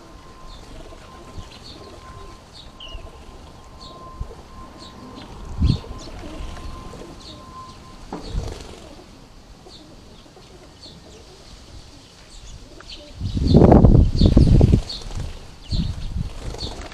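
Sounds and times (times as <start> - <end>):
birds chirping: 0.0 - 16.9
wing flapping: 8.2 - 9.2, 13.8 - 16.9.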